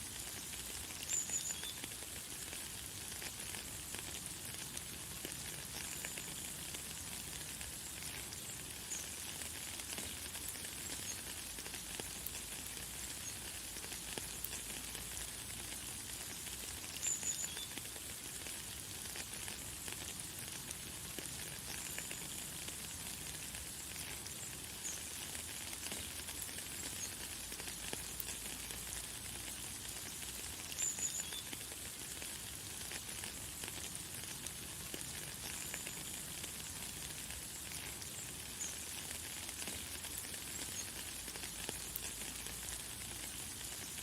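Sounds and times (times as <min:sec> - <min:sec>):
light rain pattering: 0:00.0 - 0:44.0.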